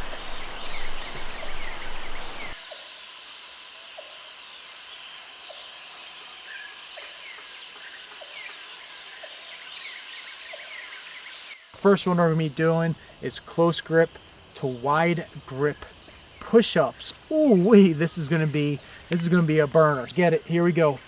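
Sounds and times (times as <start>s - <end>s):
bird chirps: 0.0s - 2.6s, 12.0s - 21.0s
wind on microphone: 0.0s - 2.6s
high-pitched insect buzz: 0.0s - 6.9s, 12.2s - 21.0s.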